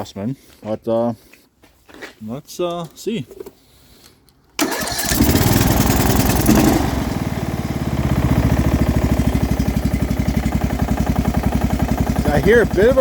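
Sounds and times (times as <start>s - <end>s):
lawn mower engine idling: 4.6s - 13.0s
low engine rattle: 4.6s - 13.0s.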